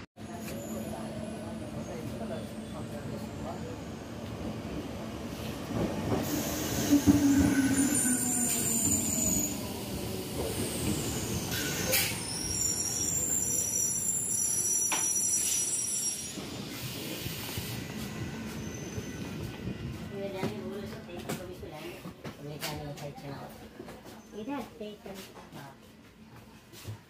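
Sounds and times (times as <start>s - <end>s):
train wheels squealing: 0.3s - 4.1s, 5.9s - 19.6s, 24.1s - 24.6s
train rumble: 16.3s - 26.6s.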